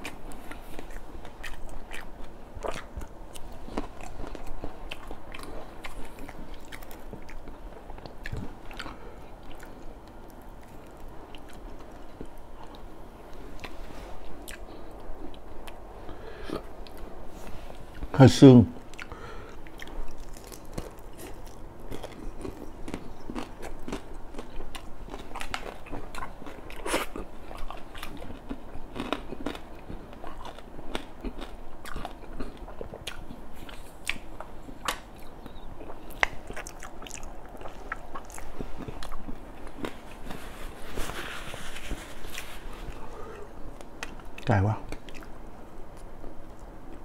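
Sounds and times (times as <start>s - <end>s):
person chewing with wet mouth clicks: 0.8s - 9.9s, 14.4s - 15.8s, 21.9s - 39.9s.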